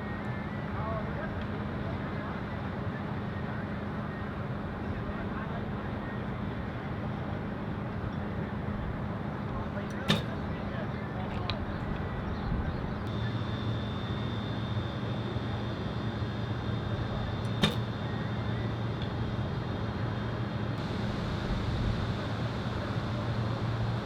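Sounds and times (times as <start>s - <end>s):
low hum: 11.5s - 24.0s.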